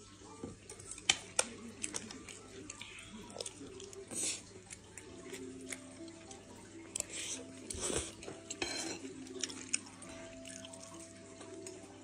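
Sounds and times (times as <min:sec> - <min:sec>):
chewing food: 0:00.6 - 0:12.0
slurp from a spoon: 0:04.1 - 0:04.5.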